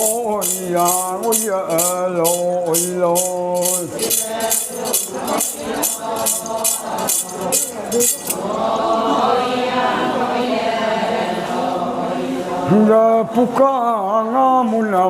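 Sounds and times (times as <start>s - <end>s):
metal jingle rattle: 0.0s - 9.0s
chorus singing together: 0.0s - 15.0s
lead voice singing: 0.0s - 15.0s.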